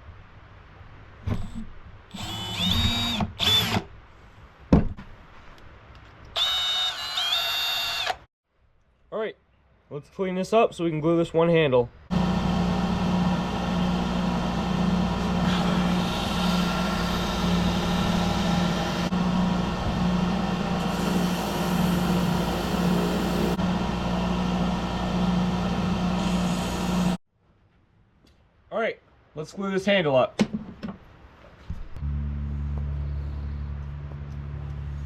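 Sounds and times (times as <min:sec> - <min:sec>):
shop vacuum running: 0:12.1 - 0:27.2.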